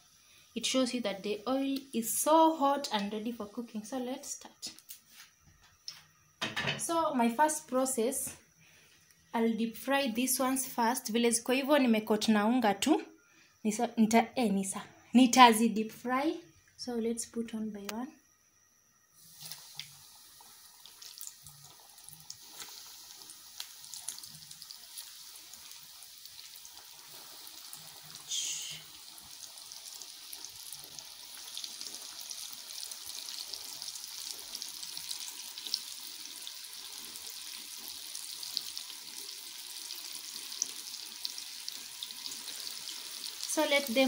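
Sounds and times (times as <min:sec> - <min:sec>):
meat deep-frying in oil: 0:19.2 - 0:44.0.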